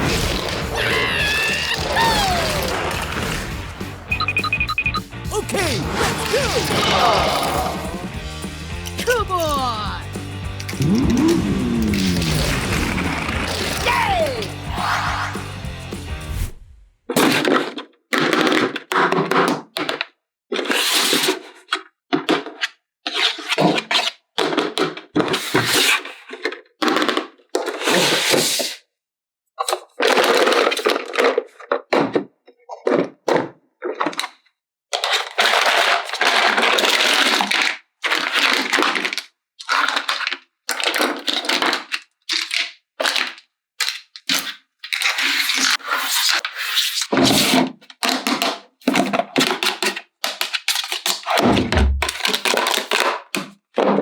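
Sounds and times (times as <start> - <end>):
plastic toy parts and packaging crackling: 8.8 - 14.1, 29.6 - 33.2, 33.8 - 54.0.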